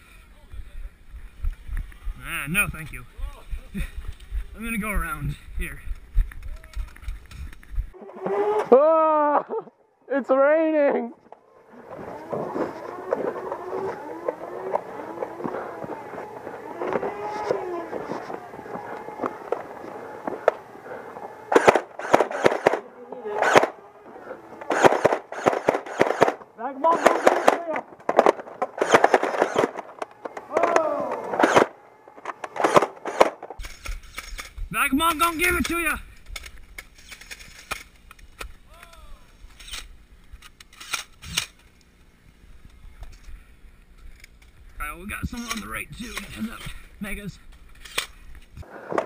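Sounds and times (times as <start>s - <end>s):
foam dart blasters firing: 11.9s - 33.6s.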